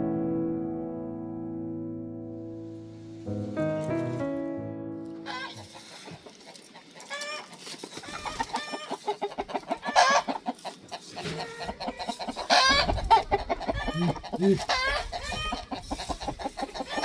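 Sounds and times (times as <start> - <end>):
chickens clucking: 5.2 - 17.0.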